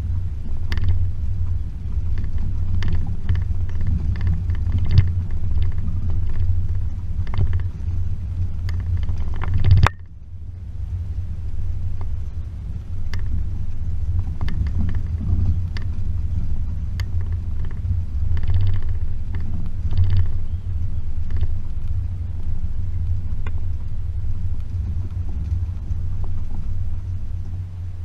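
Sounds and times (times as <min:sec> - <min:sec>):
knocks and rattles: 0:00.0 - 0:10.1, 0:14.1 - 0:22.0
car engine rumbling: 0:00.0 - 0:28.0.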